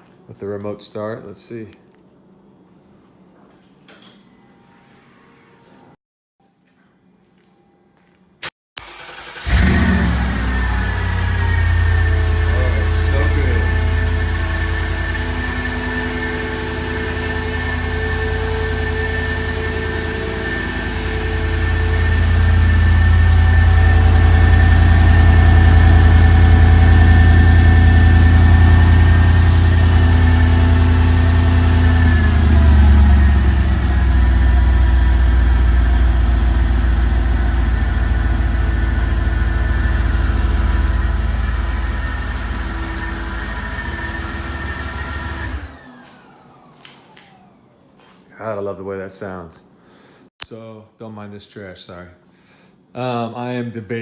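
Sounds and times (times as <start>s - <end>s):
car engine idling: 8.8s - 45.6s.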